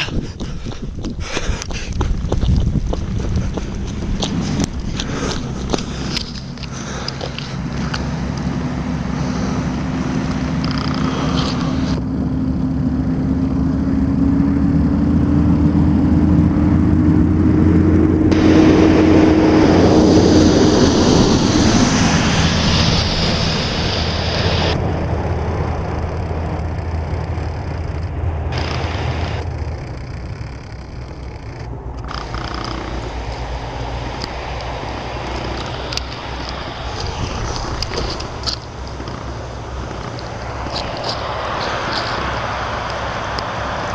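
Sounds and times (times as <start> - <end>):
vehicle engine passing: 1.9 - 43.9
tyres hissing in snow: 19.6 - 24.8, 32.2 - 43.9.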